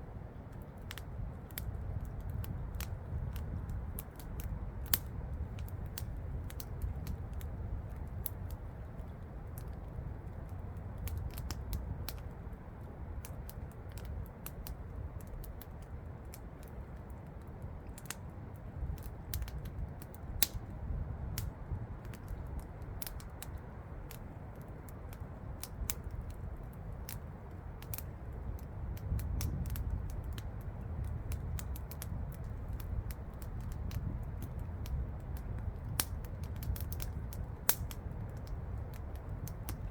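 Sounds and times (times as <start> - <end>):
campfire crackling and popping: 0.1 - 39.9.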